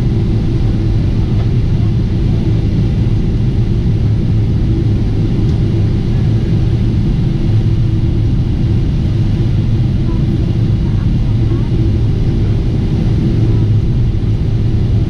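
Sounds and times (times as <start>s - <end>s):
airliner cabin engine drone: 0.0s - 15.0s.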